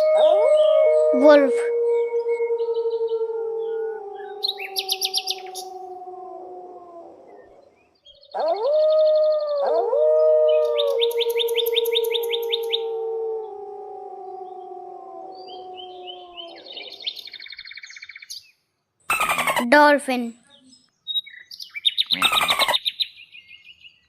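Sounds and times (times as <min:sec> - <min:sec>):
bird chirps: 0:00.0 - 0:06.0, 0:07.2 - 0:09.9, 0:10.5 - 0:12.9, 0:15.3 - 0:24.0
wolves howling: 0:00.0 - 0:17.5.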